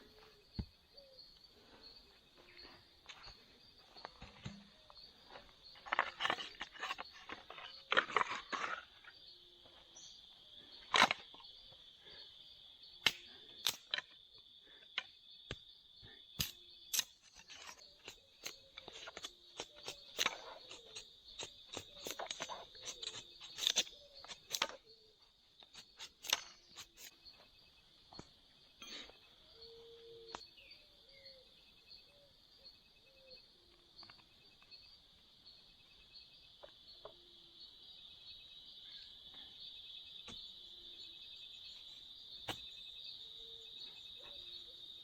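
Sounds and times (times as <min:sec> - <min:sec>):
rustles: 0:01.5 - 0:10.0.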